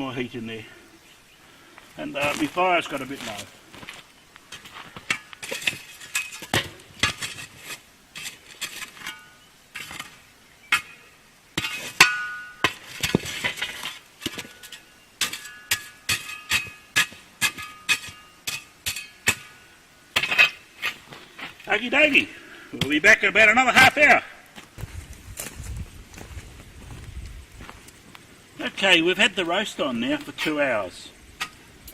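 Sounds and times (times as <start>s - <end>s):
metal tool clinking on cast iron: 11.6s - 12.8s, 14.3s - 19.6s.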